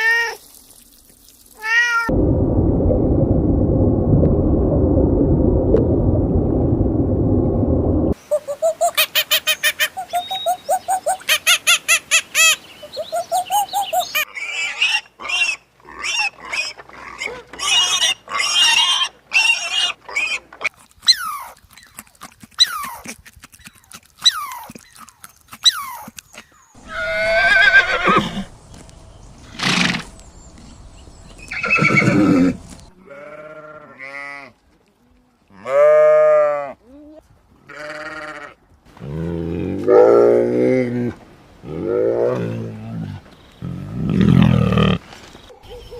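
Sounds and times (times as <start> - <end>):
sheep bleating: 33.0 - 34.6, 37.7 - 38.6.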